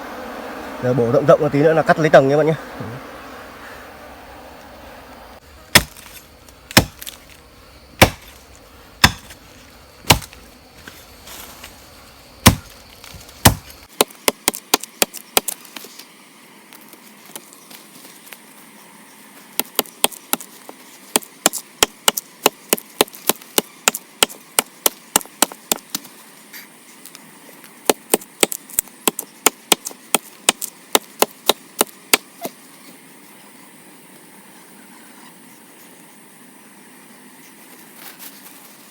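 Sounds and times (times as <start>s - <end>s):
insects buzzing faintly: 0.0s - 38.9s
axe chopping wood: 5.7s - 7.4s, 8.0s - 8.4s, 9.0s - 9.4s, 10.0s - 10.4s, 12.4s - 15.6s, 19.6s - 20.5s, 21.1s - 26.0s, 27.9s - 32.5s.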